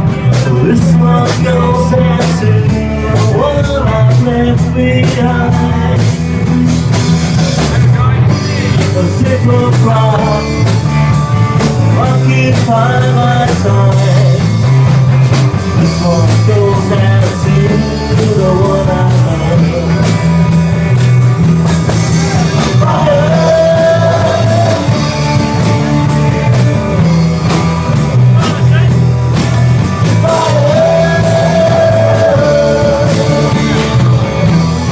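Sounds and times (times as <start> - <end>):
man singing: 0.0 - 6.5, 7.3 - 14.9, 15.6 - 21.0, 21.9 - 34.9
bass guitar: 0.0 - 34.9
drum kit beat: 0.0 - 34.9
electric guitar: 0.0 - 34.9.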